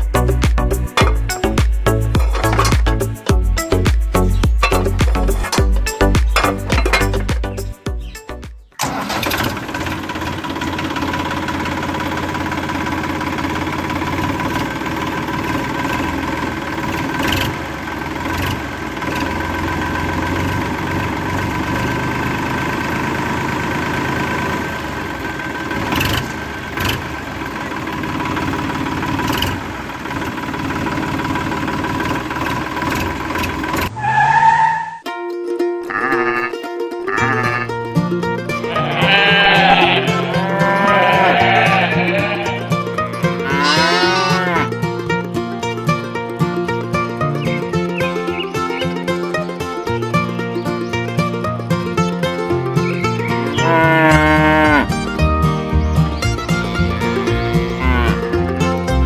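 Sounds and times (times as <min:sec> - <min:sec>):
sharp knocks: 0:00.4 - 0:08.7
tractor motor whining: 0:00.9 - 0:35.0, 0:35.9 - 0:45.3, 0:52.5 - 0:59.0.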